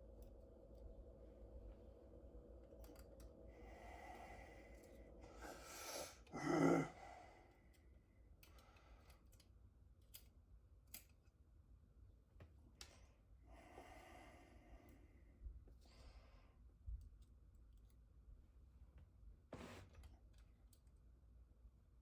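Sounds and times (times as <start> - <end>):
person sighing heavily: 5.4 - 7.3.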